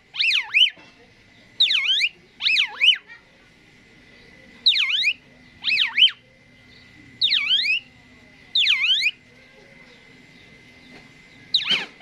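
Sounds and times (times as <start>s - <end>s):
starling whistled song: 0.1s - 0.8s, 1.6s - 3.1s, 4.6s - 9.2s, 11.3s - 12.0s.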